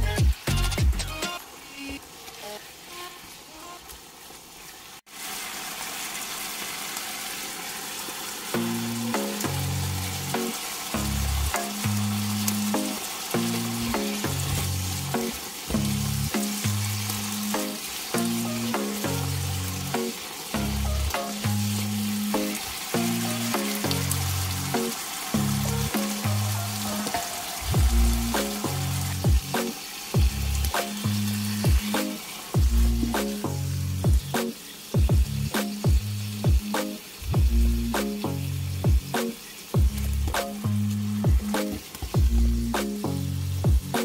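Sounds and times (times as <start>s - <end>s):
background music with bass line: 0.0s - 1.4s, 8.6s - 44.0s
mushrooms sizzling in a pan: 1.1s - 44.0s.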